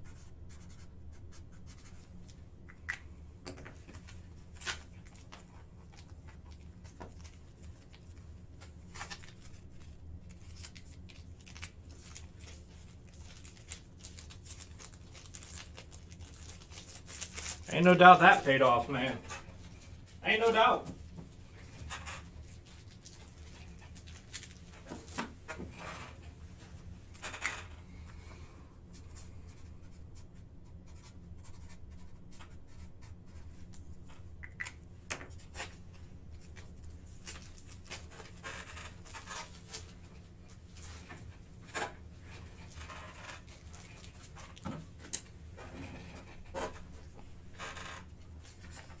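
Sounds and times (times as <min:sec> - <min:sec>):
low electrical hum: 0:00.0 - 0:49.0.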